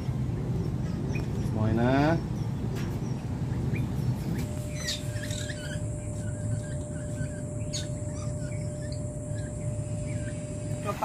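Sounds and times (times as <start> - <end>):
birds chirping: 0.0 - 11.0
low background rumble: 0.0 - 11.0
faint steady tone: 4.4 - 11.0.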